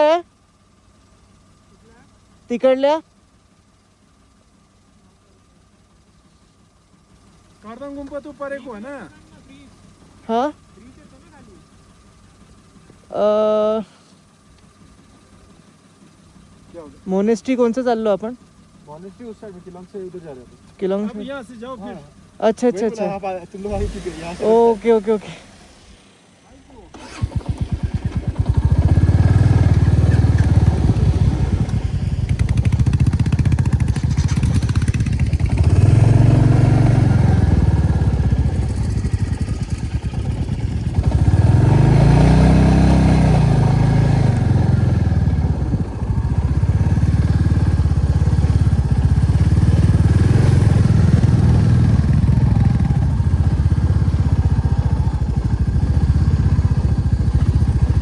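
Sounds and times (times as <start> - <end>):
motorcycle engine revving: 5.5 - 58.0.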